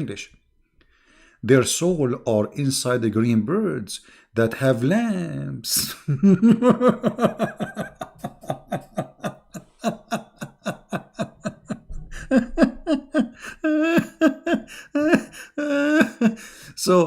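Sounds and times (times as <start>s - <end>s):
man laughing: 5.8s - 17.0s.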